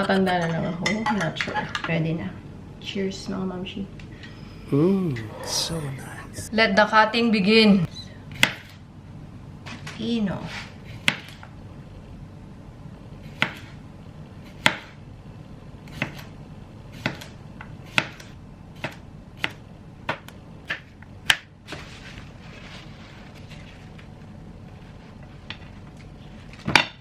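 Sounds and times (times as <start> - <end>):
knife chopping on cutting board: 17.0 - 17.3, 17.9 - 21.4.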